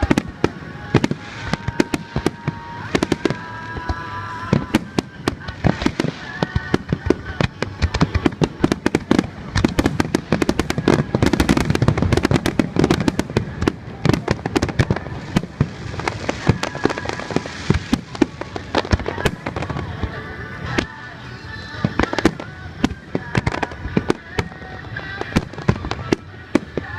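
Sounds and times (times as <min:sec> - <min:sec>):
fireworks low booms: 0:00.0 - 0:21.0
fireworks crackling: 0:00.0 - 0:26.9.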